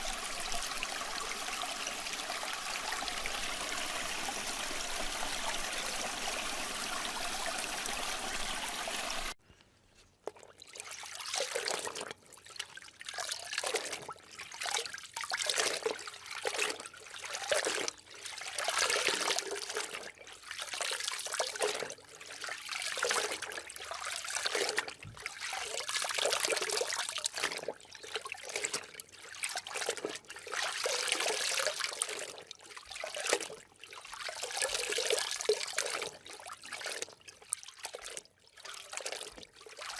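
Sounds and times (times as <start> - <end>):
water rushing: 0.0 - 9.4
water trickling and gurgling: 0.0 - 9.4, 10.2 - 39.9.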